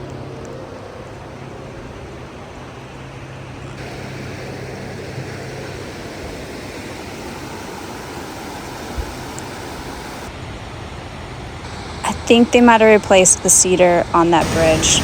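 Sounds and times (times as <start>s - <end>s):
creek water rushing: 3.8s - 10.3s.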